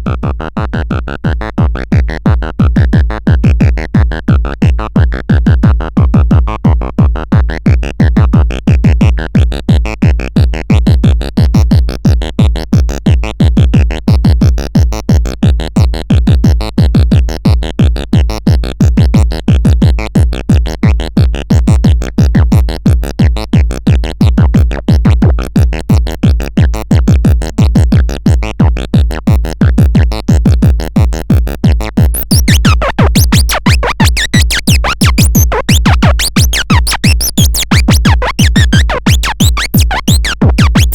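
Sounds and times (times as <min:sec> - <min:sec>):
deep bass: 0:00.0 - 0:40.9
pulsing synthesizer music: 0:32.0 - 0:40.9.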